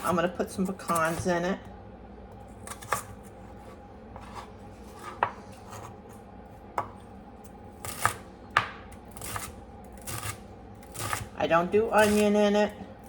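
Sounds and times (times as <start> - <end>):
knife chopping on cutting board: 2.6 - 5.9, 7.8 - 11.3.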